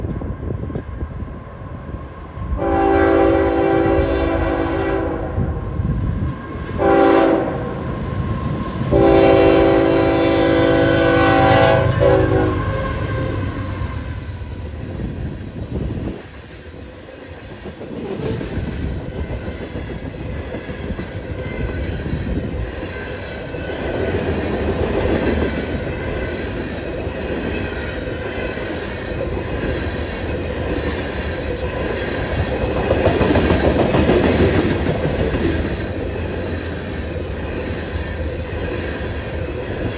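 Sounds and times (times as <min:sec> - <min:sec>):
train rumbling past: 0:00.0 - 0:39.9
locomotive air horn blasts: 0:02.6 - 0:05.5, 0:06.8 - 0:07.7, 0:08.9 - 0:13.9
wheels clacking on rails: 0:06.0 - 0:39.9.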